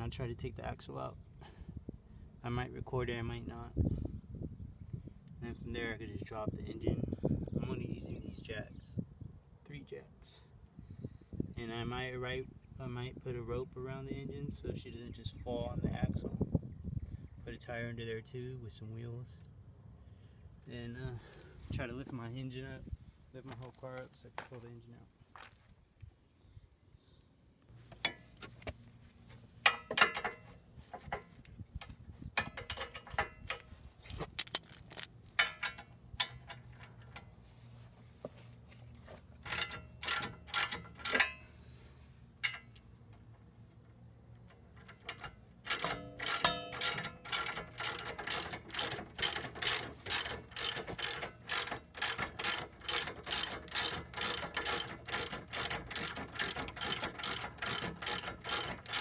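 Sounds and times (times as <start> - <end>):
ratchet wrench clicking: 39.4 - 41.4, 44.4 - 59.0.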